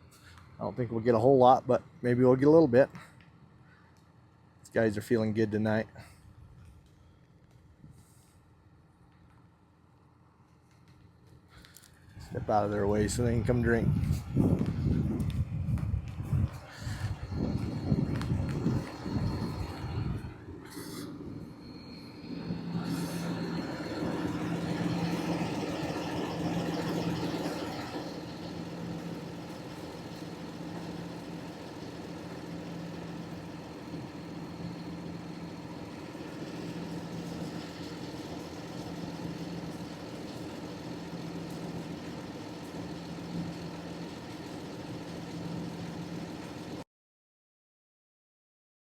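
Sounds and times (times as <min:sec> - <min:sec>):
engine idling: 0:10.6 - 0:46.8
rushing noise: 0:16.3 - 0:38.7.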